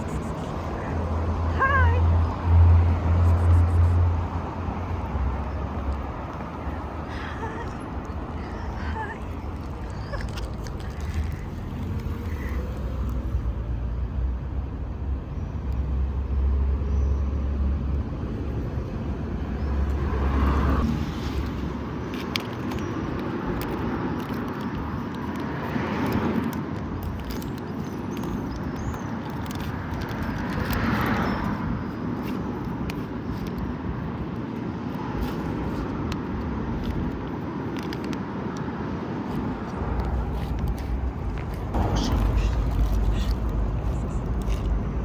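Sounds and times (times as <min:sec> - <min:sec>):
low engine rumble: 0:00.0 - 0:23.7, 0:39.0 - 0:45.0
cars passing: 0:00.0 - 0:45.0.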